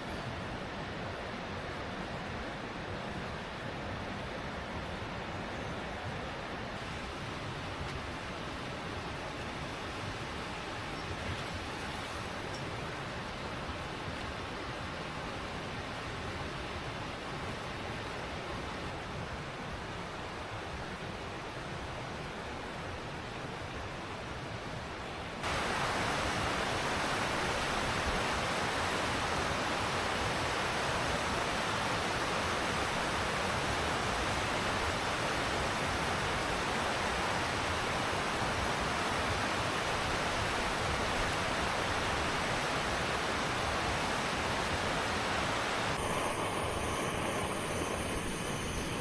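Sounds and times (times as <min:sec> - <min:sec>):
river water rushing: 0:25.4 - 0:49.0.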